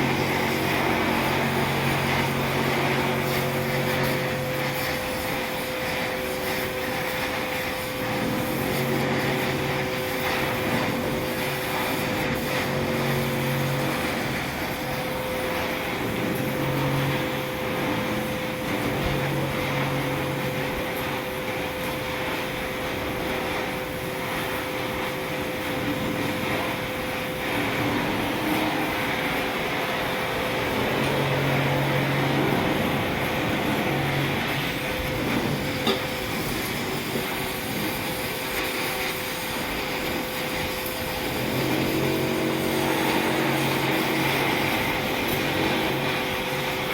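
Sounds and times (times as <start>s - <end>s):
constant hum: 0.0s - 46.9s
gas welding torch hissing: 0.0s - 46.9s
low machine drone: 0.0s - 46.9s.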